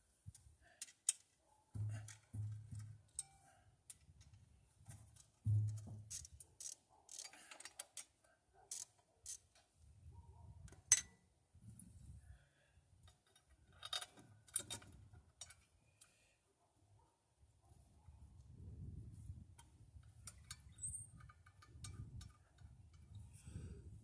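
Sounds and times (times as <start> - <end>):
metallic clicks of tools and bolts: 0.3 - 9.7, 10.7 - 11.2, 13.0 - 16.2, 19.6 - 23.2.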